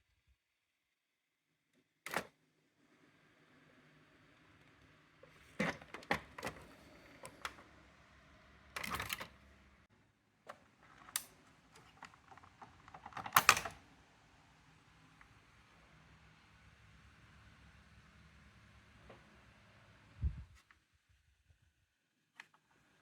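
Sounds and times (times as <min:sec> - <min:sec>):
typewriter clicks and clatter: 0:11.0 - 0:13.8
typewriter rattling: 0:11.8 - 0:13.8.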